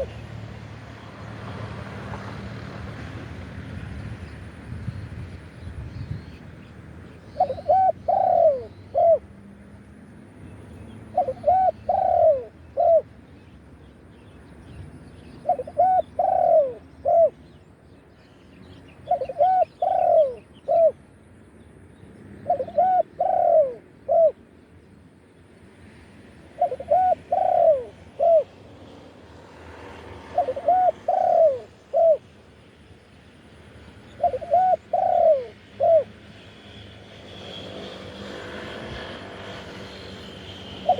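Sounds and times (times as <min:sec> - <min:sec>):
dove cooing: 0:00.0 - 0:00.3, 0:07.3 - 0:09.3, 0:11.0 - 0:13.2, 0:15.4 - 0:17.4, 0:19.0 - 0:21.0, 0:22.4 - 0:24.4, 0:26.6 - 0:28.6, 0:30.1 - 0:32.4, 0:34.0 - 0:36.2, 0:40.5 - 0:40.9.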